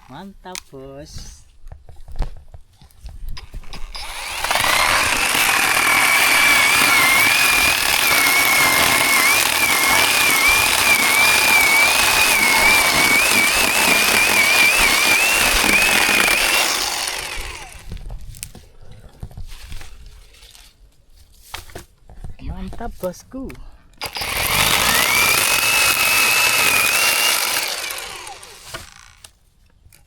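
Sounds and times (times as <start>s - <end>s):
electric chainsaw whine: 3.4s - 18.0s, 24.0s - 29.3s.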